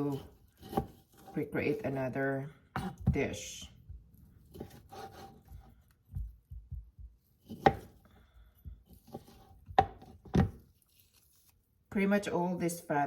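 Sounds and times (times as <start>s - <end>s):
soft low thumps: 2.8s - 4.4s, 5.5s - 7.4s, 8.4s - 9.0s.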